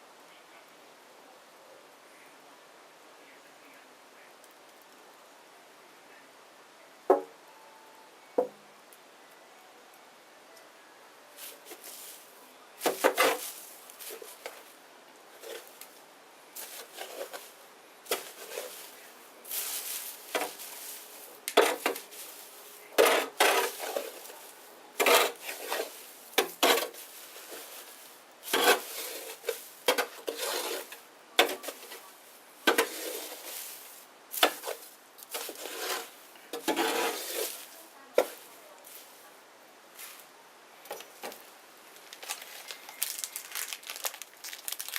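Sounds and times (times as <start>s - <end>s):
faint hiss: 0.0s - 44.8s
bonfire crackling and popping: 11.7s - 37.8s, 40.9s - 44.9s.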